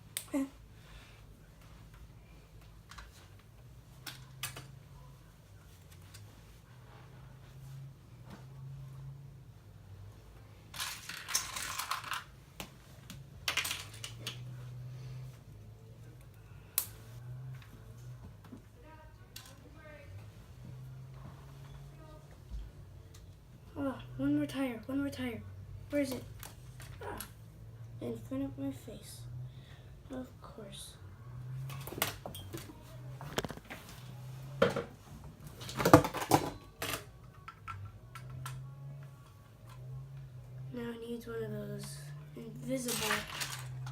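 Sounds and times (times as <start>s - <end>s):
plastic pieces clattering: 10.7s - 12.3s, 13.4s - 14.4s, 35.6s - 37.1s, 42.8s - 43.9s
plastic toy bricks clicking: 10.8s - 12.3s, 42.9s - 43.9s.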